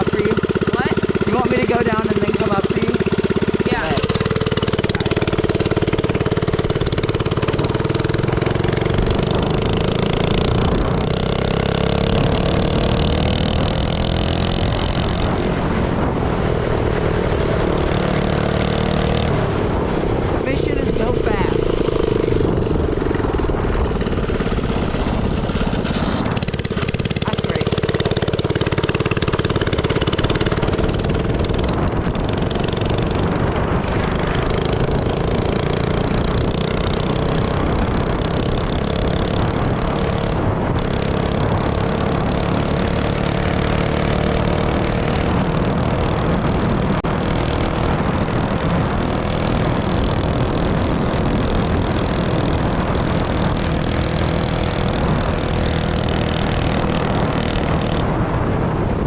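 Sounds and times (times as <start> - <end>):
minibike engine with loud exhaust: 0.0 - 59.0.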